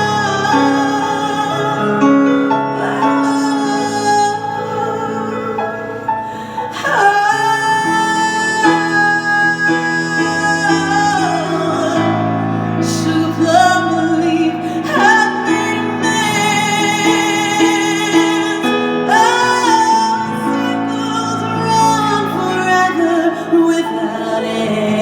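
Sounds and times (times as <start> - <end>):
person singing long sliding notes: 0.0 - 25.0.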